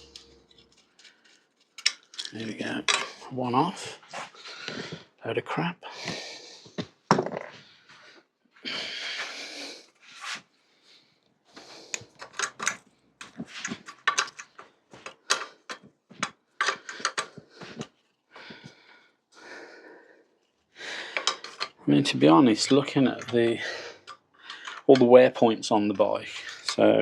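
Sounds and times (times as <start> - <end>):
metal parts clinking: 0.0 - 3.2.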